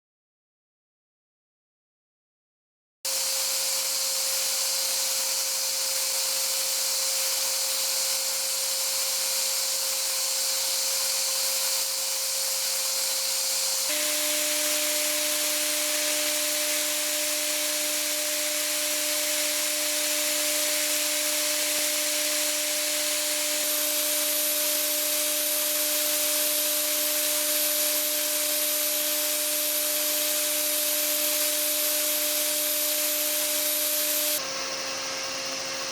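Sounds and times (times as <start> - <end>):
milling machine whine: 10.4 - 35.9.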